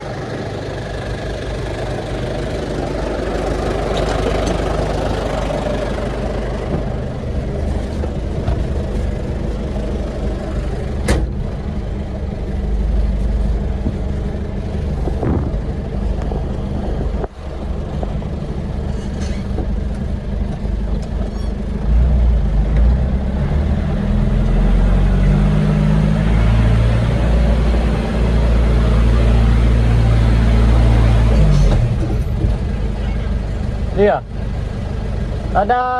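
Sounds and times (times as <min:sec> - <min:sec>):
truck engine rumbling: 0:00.0 - 0:35.9.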